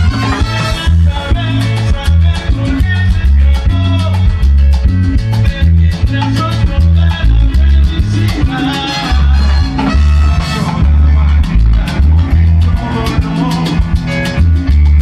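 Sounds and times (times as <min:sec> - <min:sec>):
salsa music: 0:00.0 - 0:15.0.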